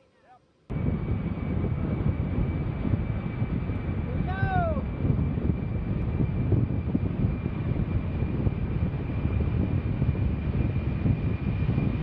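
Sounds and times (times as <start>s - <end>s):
jet engines running: 0.7s - 12.0s.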